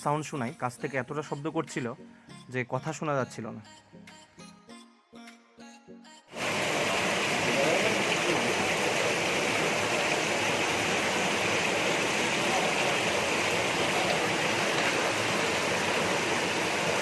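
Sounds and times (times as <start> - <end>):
stream water rushing over boulders: 6.4 - 17.0.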